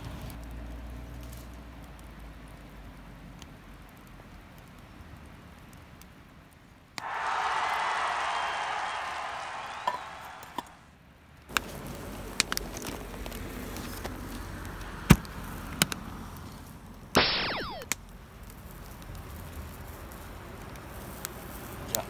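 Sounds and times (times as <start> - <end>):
wood fire crackling and popping: 0.0 - 6.6, 11.4 - 22.0
burst with falling tones: 17.2 - 17.9.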